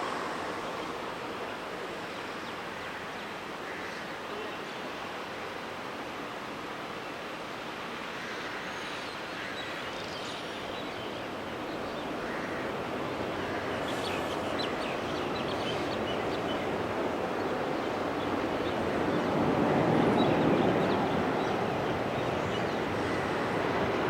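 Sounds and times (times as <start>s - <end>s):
aircraft engine roar: 0.0s - 2.8s.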